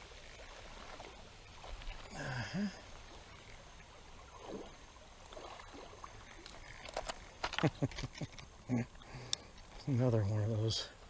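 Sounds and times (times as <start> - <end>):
creek water rushing: 0.0 - 7.6
person murmuring: 2.1 - 2.8.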